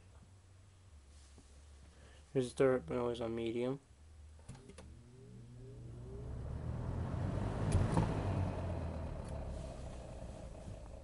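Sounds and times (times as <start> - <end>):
fan motor humming and grinding: 4.5 - 11.0
rush of air from fan blades: 5.8 - 11.0.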